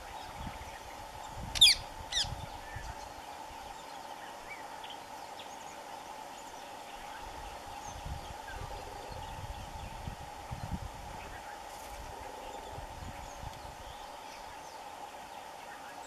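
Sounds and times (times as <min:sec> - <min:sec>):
loud sharp bird calls: 0:01.6 - 0:02.4.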